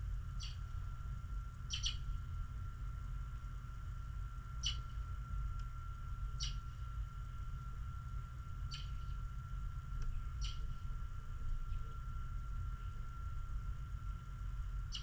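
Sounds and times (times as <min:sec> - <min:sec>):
small bird chirping: 0:00.4 - 0:00.6, 0:01.7 - 0:02.1, 0:04.6 - 0:05.0, 0:06.4 - 0:06.8, 0:08.7 - 0:09.2, 0:10.2 - 0:10.8.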